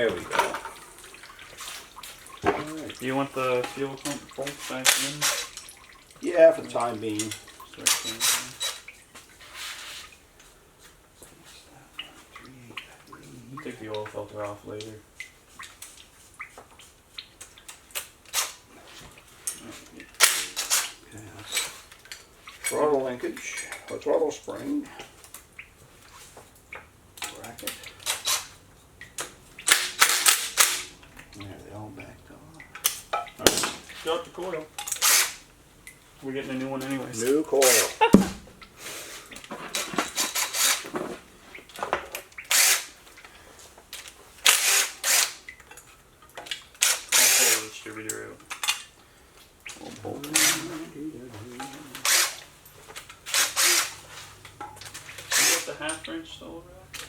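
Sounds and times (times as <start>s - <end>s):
short bursts of tool noise: 4.9s - 5.6s, 7.9s - 8.9s, 18.3s - 18.6s, 20.2s - 21.7s, 28.0s - 28.6s, 29.7s - 30.9s, 34.9s - 35.4s, 39.8s - 40.9s, 42.5s - 43.0s, 44.4s - 45.4s, 46.8s - 47.7s, 50.4s - 50.7s, 52.0s - 52.5s, 53.2s - 54.1s, 55.2s - 55.8s
hand tools clinking on metal: 6.7s - 8.9s.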